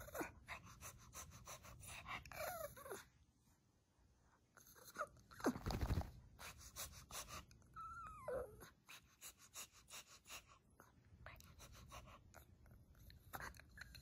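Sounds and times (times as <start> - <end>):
dog whining: 0.0 - 0.4, 2.3 - 3.2, 4.6 - 5.7, 7.7 - 8.9
dog panting: 0.0 - 3.0, 8.7 - 14.0.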